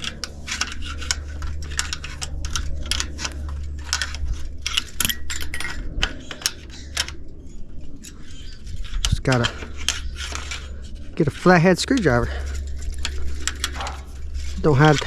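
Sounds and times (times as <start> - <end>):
steady low hum: 0.0 - 15.0
hand tools clinking on metal: 9.0 - 15.0.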